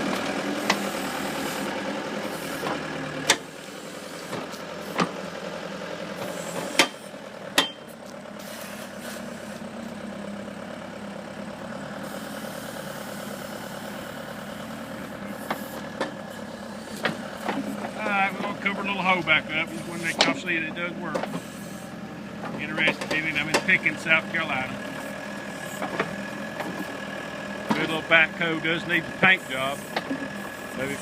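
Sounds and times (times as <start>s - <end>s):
diesel engine running: 0.0s - 31.0s
sharp metallic knocks: 6.7s - 7.9s.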